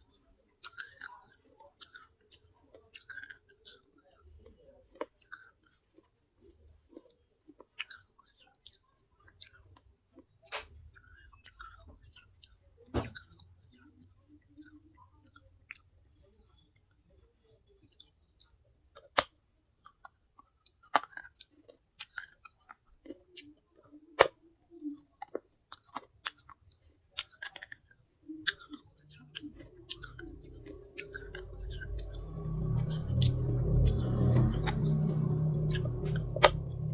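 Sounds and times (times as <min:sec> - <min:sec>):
chewing crunchy baked clay: 0:00.0 - 0:36.9
low hum: 0:28.7 - 0:36.9.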